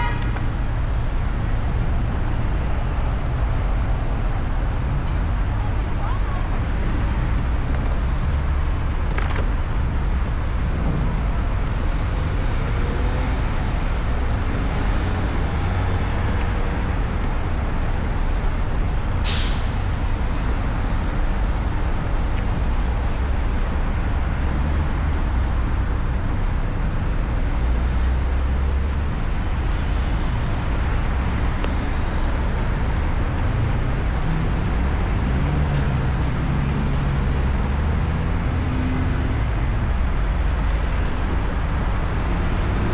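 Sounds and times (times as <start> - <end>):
road and wind noise: 0.0 - 42.9
short sharp hiss: 19.3 - 19.8.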